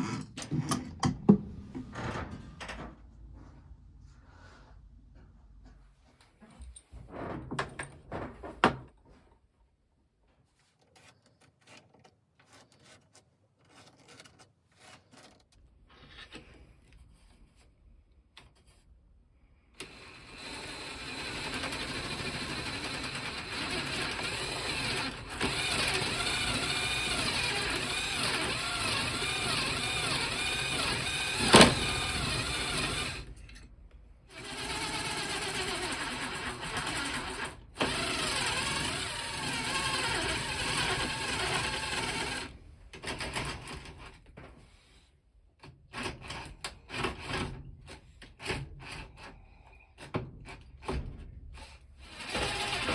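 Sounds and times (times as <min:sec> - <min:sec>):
knocks and clicks from handling: 0:00.1 - 0:03.0
electric power tool motor running: 0:19.8 - 0:33.3, 0:34.3 - 0:42.5.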